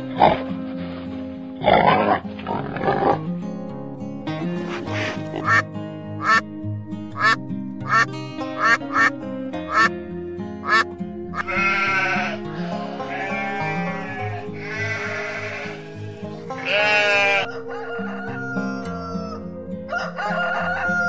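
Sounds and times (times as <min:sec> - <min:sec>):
cheerful background music: 0:00.0 - 0:21.0
duck quacking: 0:04.8 - 0:06.4, 0:07.2 - 0:10.0, 0:10.6 - 0:15.9, 0:16.5 - 0:17.6
sheep bleating: 0:10.6 - 0:10.8, 0:11.4 - 0:17.5.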